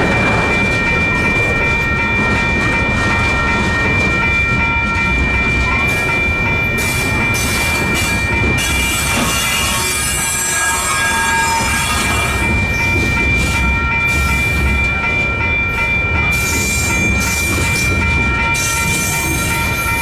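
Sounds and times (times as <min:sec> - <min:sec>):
crossing bells ringing: 0:00.0 - 0:20.0
freight train rumble and clatter: 0:00.0 - 0:20.0
high wheel squeal: 0:06.8 - 0:14.5.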